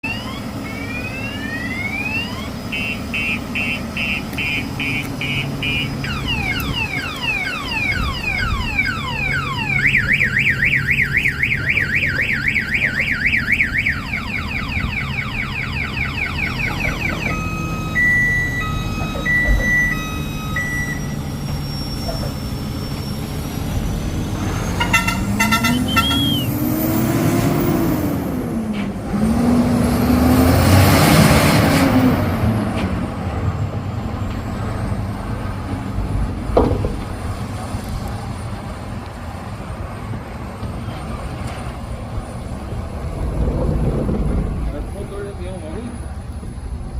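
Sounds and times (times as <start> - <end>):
electronic siren cycling tones: 0.0 - 27.3
truck engine running: 0.0 - 31.1.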